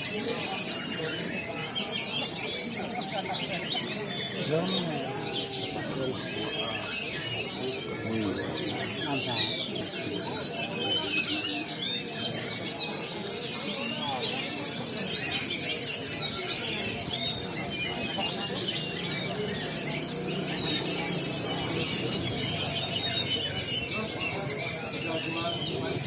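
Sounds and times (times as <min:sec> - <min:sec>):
caged songbirds singing: 0:00.0 - 0:26.0
murmur of people talking: 0:00.0 - 0:26.0.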